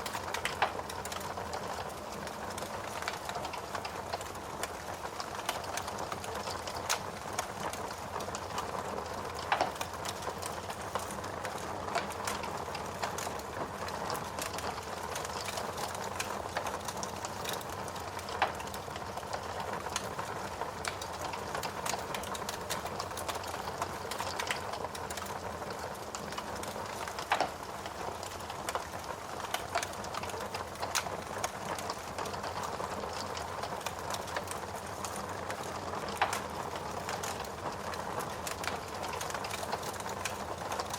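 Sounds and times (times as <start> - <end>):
crackling and popping logs: 0.0 - 40.9
wood fire burning: 0.0 - 40.9.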